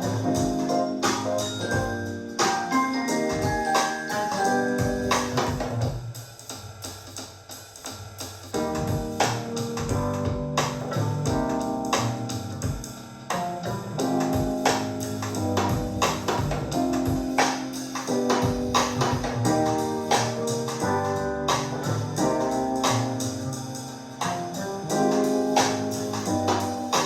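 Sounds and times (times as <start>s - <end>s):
instrumental music over loudspeakers: 0.0s - 5.9s.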